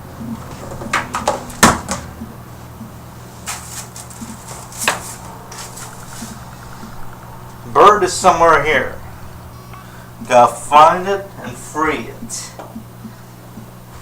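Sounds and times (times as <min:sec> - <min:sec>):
steady low hum: 0:00.0 - 0:14.0
rustling of things being handled: 0:03.2 - 0:07.0.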